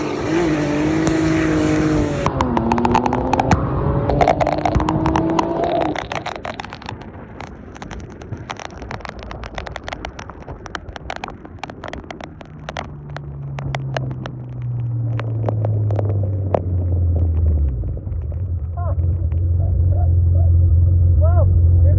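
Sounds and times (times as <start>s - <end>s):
sharp clicks and crackles: 0.1s - 20.7s.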